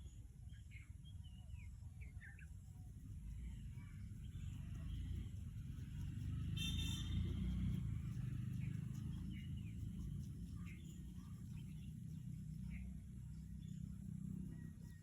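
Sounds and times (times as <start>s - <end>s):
birds chirping: 2.1s - 15.0s
steady low rumble: 7.2s - 15.0s.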